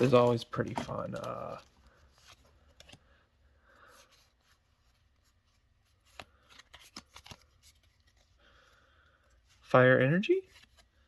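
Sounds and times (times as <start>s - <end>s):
cards clicking and rustling: 0.0s - 3.1s, 5.6s - 8.4s.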